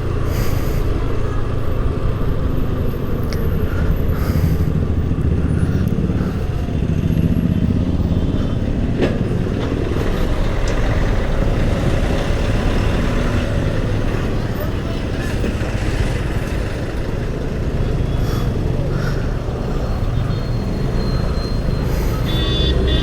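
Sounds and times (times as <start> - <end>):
road and wind rumble: 0.0 - 23.0
scooter engine humming: 0.0 - 23.0.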